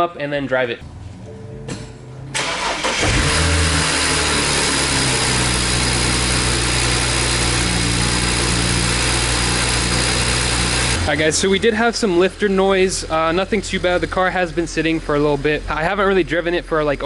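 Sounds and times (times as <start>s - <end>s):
car engine cranking and starting: 2.3s - 15.7s
car engine idling: 2.3s - 17.0s.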